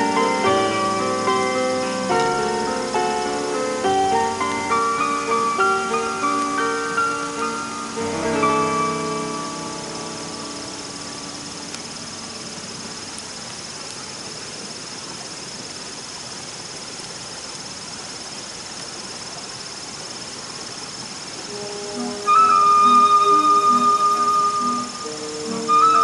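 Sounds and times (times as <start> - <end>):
crickets trilling: 0.0 - 26.0
outdoor hiss: 0.0 - 26.0
faint clicks: 11.7 - 12.0, 13.0 - 14.1.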